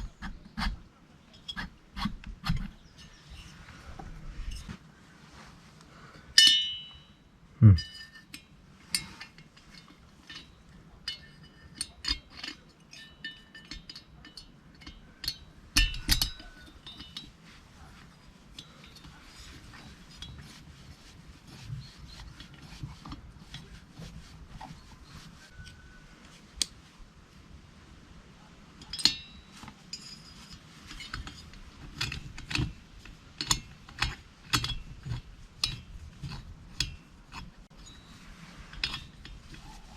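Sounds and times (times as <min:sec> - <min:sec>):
metal tools clinking and tapping: 0:06.4 - 0:07.2, 0:07.8 - 0:20.6, 0:28.8 - 0:39.9.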